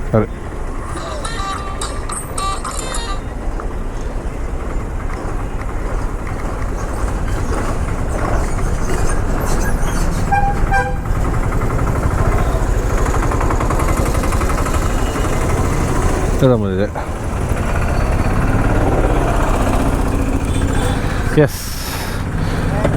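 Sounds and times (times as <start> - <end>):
motorcycle engine rumble: 0.0 - 22.9
wind and road noise: 0.0 - 22.9
vehicle horn toot: 1.0 - 3.4, 10.3 - 11.2.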